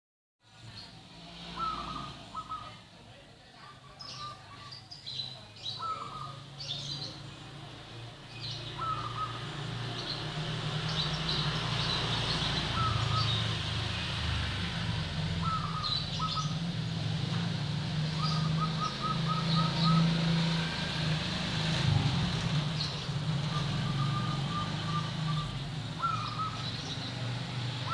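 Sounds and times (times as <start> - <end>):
small birds chirping: 0.5 - 27.9
dove cooing: 1.6 - 2.8, 5.8 - 6.4, 8.8 - 9.5, 12.6 - 13.6, 15.4 - 16.6, 18.2 - 20.3, 23.4 - 27.0.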